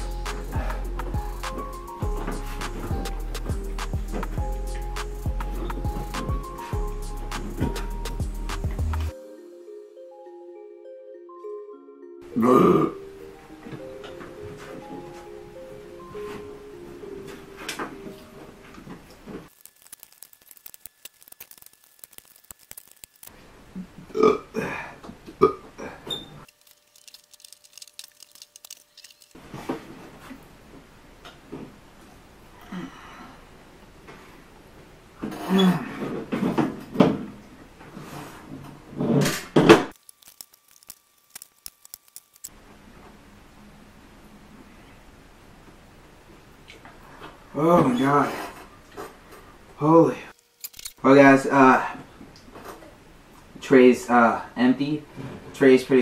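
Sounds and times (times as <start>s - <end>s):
low room hiss: 9.0s - 56.0s
loud burp: 12.3s - 13.0s, 24.1s - 26.0s
small clicks: 19.5s - 23.3s, 26.5s - 29.4s, 39.9s - 42.5s
chewing curly fries: 26.5s - 29.4s.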